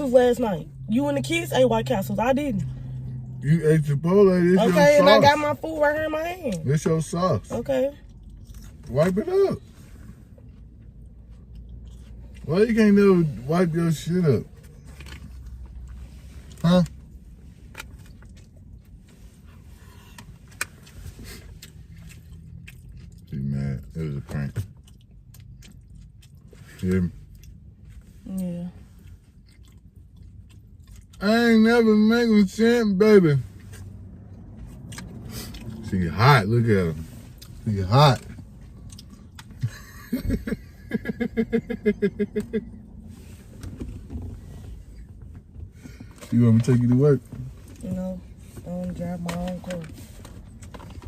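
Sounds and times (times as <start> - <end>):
car interior rumble: 0.0 - 51.0
person laughing: 39.6 - 42.7.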